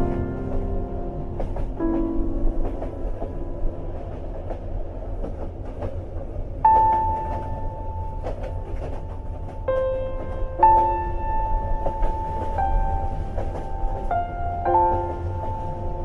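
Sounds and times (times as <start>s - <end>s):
train rumbling: 0.0s - 16.0s
wheels clicking on rails: 0.0s - 16.0s
held keyboard notes: 6.7s - 16.0s.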